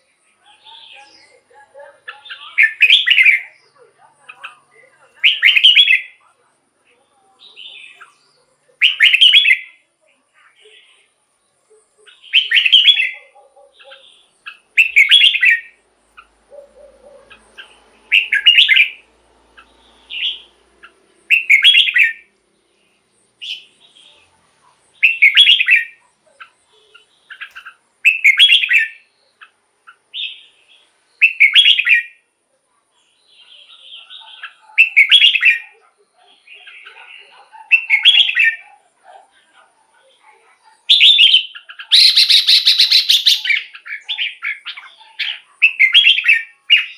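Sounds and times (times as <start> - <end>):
soft bird chirps: 0.0 - 46.9
bird whistled phrases: 2.1 - 3.6, 5.2 - 6.2, 8.8 - 9.8, 12.1 - 15.8, 16.9 - 19.0, 19.6 - 20.6, 21.3 - 22.3, 25.0 - 26.0, 26.8 - 30.5, 31.2 - 32.2, 33.4 - 38.7, 40.8 - 46.9.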